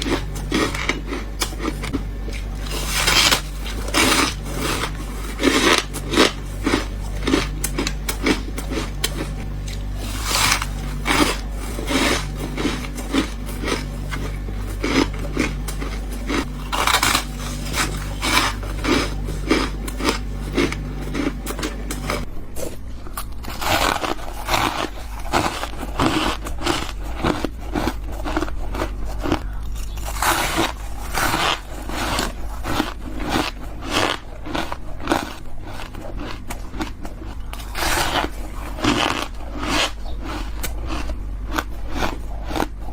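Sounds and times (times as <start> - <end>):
crunchy bites of frost: 0.0 - 22.2.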